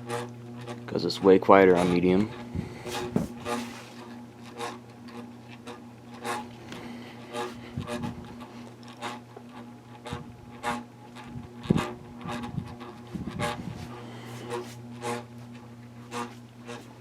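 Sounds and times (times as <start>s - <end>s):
ceiling fan motor hum: 0.0s - 17.0s
fan rubbing scrape: 0.0s - 17.0s.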